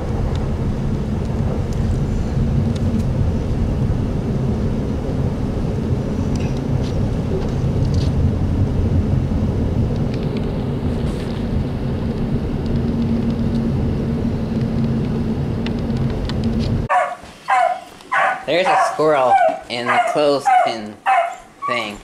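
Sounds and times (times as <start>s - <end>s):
car engine and tyre rumble: 0.0s - 16.9s.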